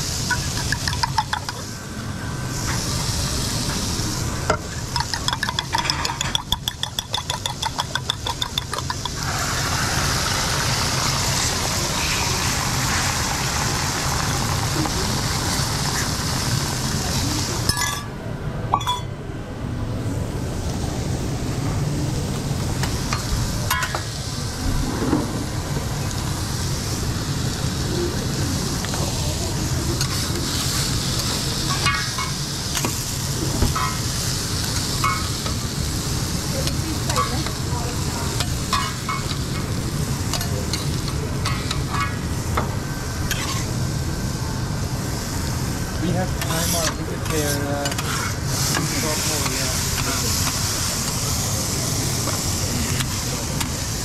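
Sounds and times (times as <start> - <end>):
omelette sizzling: 2.9 - 17.8.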